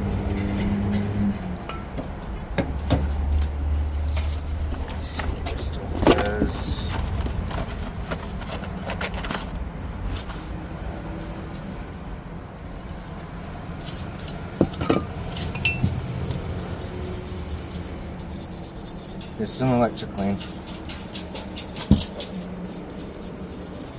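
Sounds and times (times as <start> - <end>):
small metal parts clinking: 13.8 - 16.4, 18.5 - 23.9.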